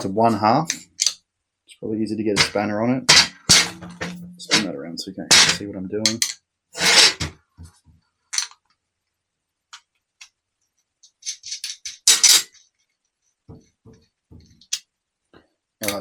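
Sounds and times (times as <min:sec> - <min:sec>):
metal clatter: 0:02.4 - 0:04.7, 0:05.3 - 0:07.3
soft knocks: 0:13.5 - 0:14.6.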